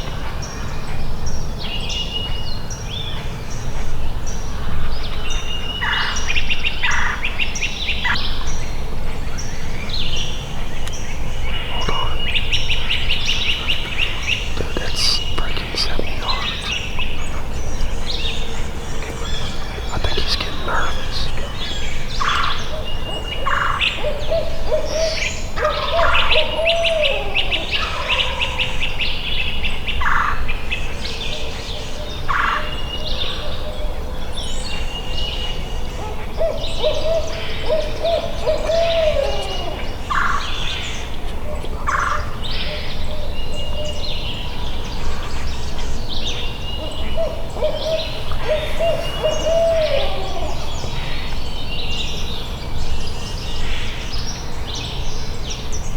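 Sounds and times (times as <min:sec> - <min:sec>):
songbirds chirping and trilling: 0:00.0 - 0:55.9
owl hooting: 0:11.4 - 0:22.7, 0:36.4 - 0:40.7, 0:47.1 - 0:51.4.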